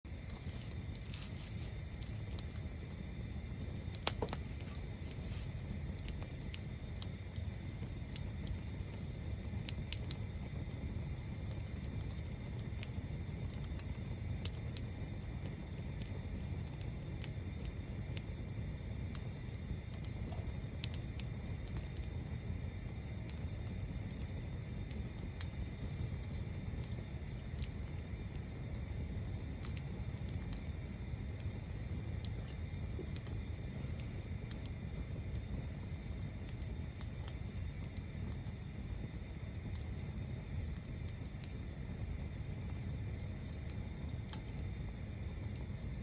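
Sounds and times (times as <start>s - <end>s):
bonfire crackling and popping: 0.1s - 46.0s.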